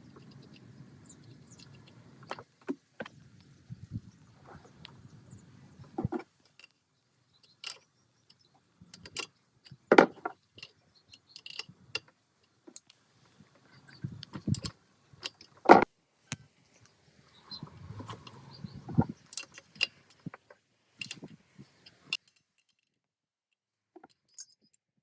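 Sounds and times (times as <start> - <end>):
metal parts clinking: 9.0 - 12.1, 19.2 - 20.3, 24.0 - 24.8.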